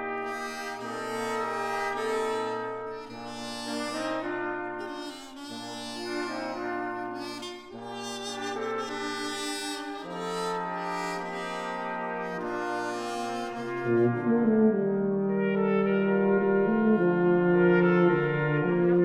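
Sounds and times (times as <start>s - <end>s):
brass ensemble playing slow chords: 0.0s - 19.0s.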